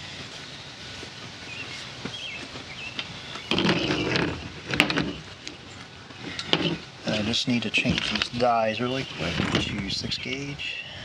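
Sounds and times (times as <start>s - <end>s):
tools rustling and scraping: 3.4s - 6.9s, 7.7s - 9.9s.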